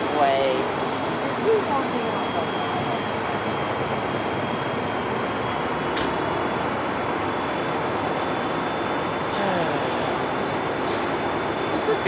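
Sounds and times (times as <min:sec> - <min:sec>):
diesel locomotive idling: 0:00.0 - 0:12.0.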